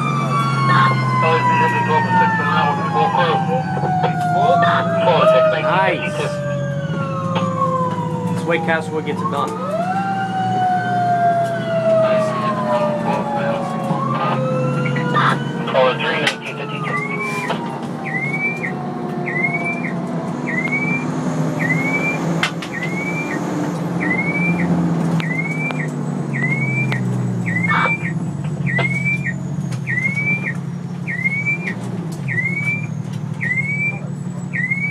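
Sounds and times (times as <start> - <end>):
fire engine diesel running: 0.0 - 34.9
rising electronic chirp: 19.3 - 34.9.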